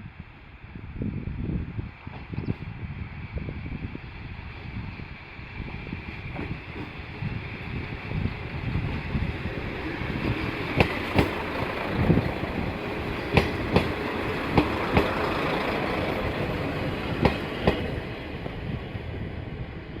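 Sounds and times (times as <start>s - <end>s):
railcar rumbling on track: 0.0s - 20.0s
wheels clicking over rail joints: 9.9s - 17.9s.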